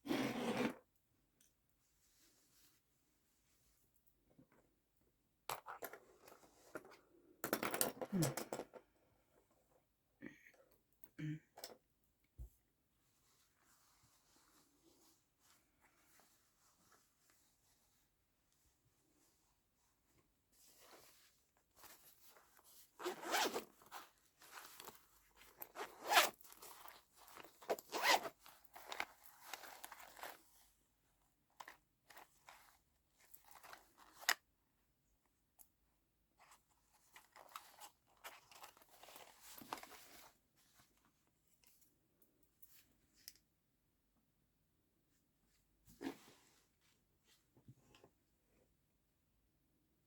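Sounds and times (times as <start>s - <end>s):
cloth rustling: 13.0s - 30.8s.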